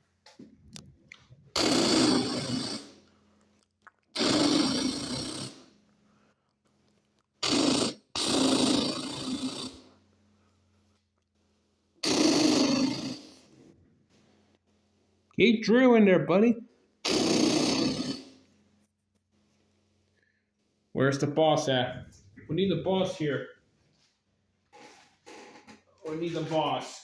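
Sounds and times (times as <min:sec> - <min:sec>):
rough buzzing drilling: 0:01.6 - 0:02.9, 0:04.2 - 0:05.6, 0:07.4 - 0:09.8, 0:17.1 - 0:18.3.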